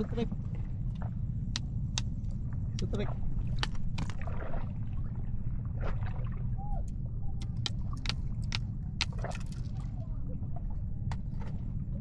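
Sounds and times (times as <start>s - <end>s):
boat motor rumbling: 0.0s - 12.0s.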